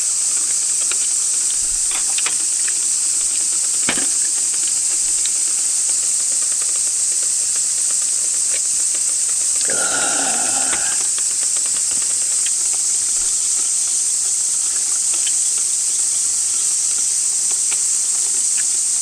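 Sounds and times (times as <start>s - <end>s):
cicadas droning: 0.0s - 19.0s
faint clicks: 0.0s - 19.0s.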